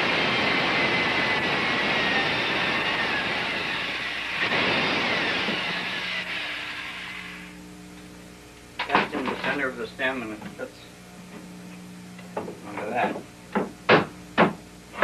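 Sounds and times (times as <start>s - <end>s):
electric power tool whining: 0.0s - 7.6s.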